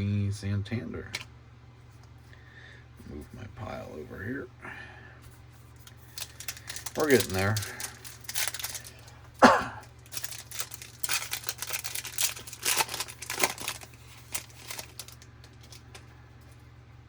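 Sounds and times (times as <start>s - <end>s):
foil wrapper tearing and crinkling: 5.8s - 9.2s, 9.8s - 16.0s.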